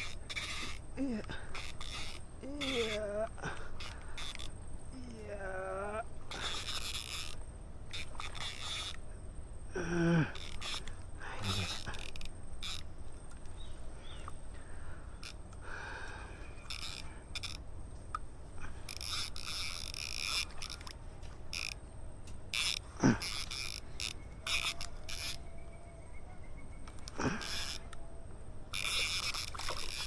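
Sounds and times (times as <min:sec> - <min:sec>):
clicks and scrapes of gear: 0:00.0 - 0:00.8, 0:01.5 - 0:03.0, 0:06.3 - 0:09.0, 0:10.4 - 0:12.9, 0:16.7 - 0:17.6, 0:18.8 - 0:20.9, 0:21.5 - 0:25.4, 0:28.8 - 0:30.0.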